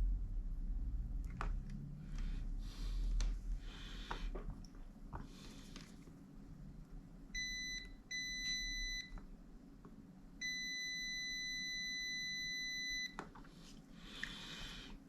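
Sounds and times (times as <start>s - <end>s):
multimeter continuity beep: 7.4s - 9.2s, 10.4s - 13.2s.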